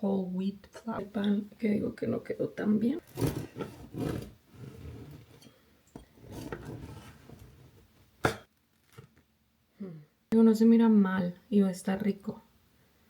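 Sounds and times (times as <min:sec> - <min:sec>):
bread rustling and scraping: 0:03.0 - 0:08.0.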